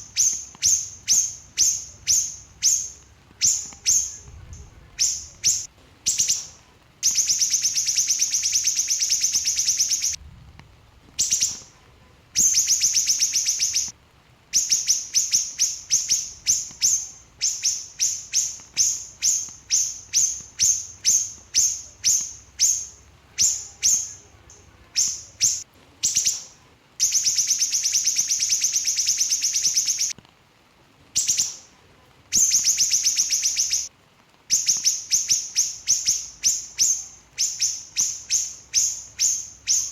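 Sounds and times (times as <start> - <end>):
bird singing trills and chirps: 0.0 - 10.2, 11.2 - 11.7, 12.4 - 13.9, 14.6 - 30.2, 31.2 - 31.7, 32.4 - 33.9, 34.5 - 39.9.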